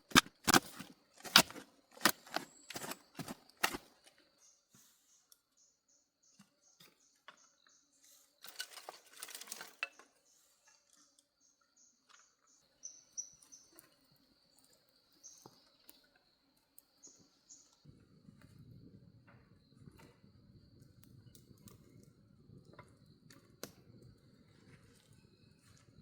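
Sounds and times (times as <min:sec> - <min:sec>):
crackling rustle: 0:00.0 - 0:04.1
insects chirping: 0:00.0 - 0:10.0.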